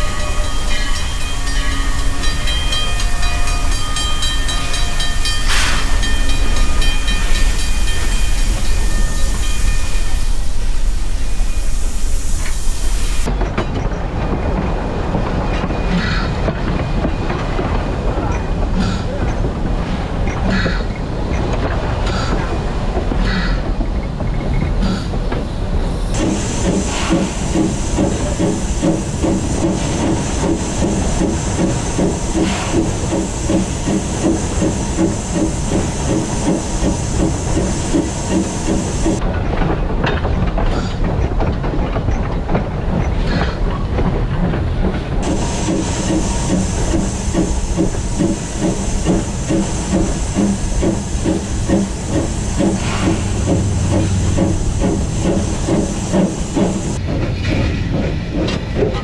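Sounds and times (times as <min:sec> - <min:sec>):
hiss of steam: 0:00.0 - 0:13.3, 0:25.8 - 0:39.2, 0:45.2 - 0:58.8
steam locomotive running: 0:00.0 - 0:59.0.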